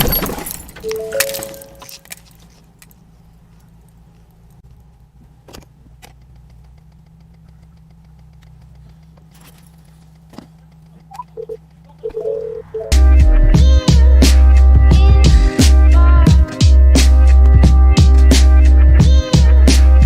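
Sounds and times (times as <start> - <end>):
glass and debris clattering: 0.0 - 2.9
low vehicle rumble: 0.1 - 20.0
faint clicks: 6.0 - 9.3
short steady tone: 11.2 - 13.1.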